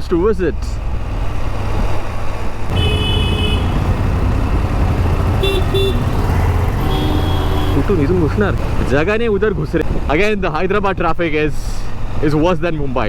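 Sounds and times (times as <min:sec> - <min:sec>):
road noise: 0:00.0 - 0:13.0
motorcycle engine rumble: 0:00.5 - 0:11.1
traffic horns honking: 0:02.7 - 0:08.8.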